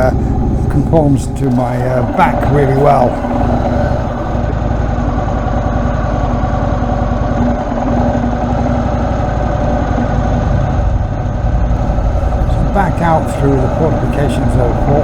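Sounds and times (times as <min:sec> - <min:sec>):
motorcycle engine running: 0:00.0 - 0:04.4, 0:11.8 - 0:15.0.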